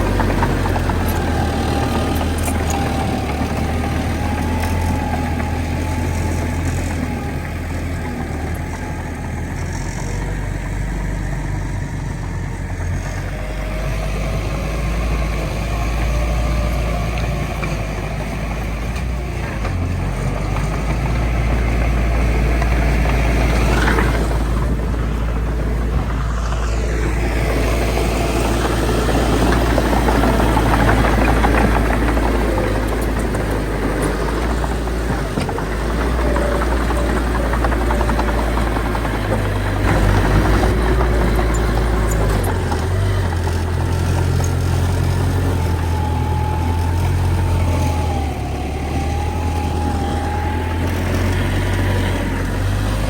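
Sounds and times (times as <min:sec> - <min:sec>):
heavy machinery diesel engines rumbling: 0:00.0 - 0:53.0.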